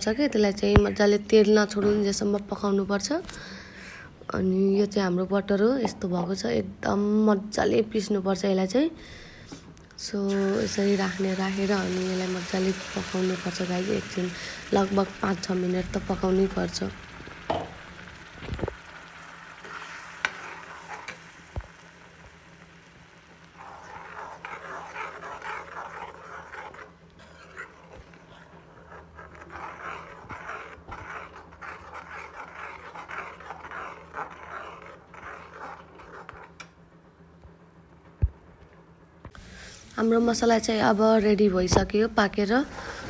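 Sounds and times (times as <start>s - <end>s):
spoon stirring and scraping: 10.3s - 21.9s, 23.4s - 36.7s
paste sizzling and spattering: 10.3s - 28.0s.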